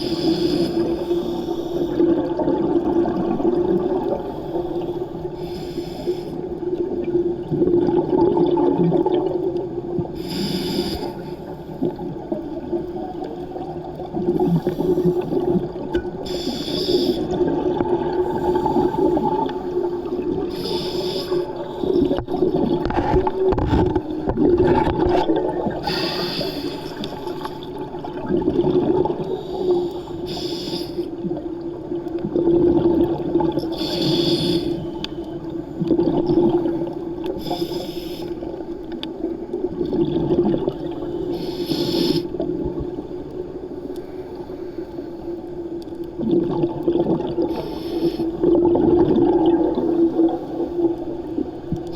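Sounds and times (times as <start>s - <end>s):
diver exhaling bubbles: 46.2s - 50.5s.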